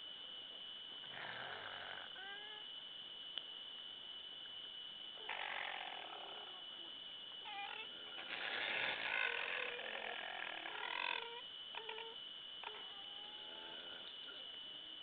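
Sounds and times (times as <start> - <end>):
animal hoarse snore-like calls: 1.1 - 2.6, 5.2 - 14.4.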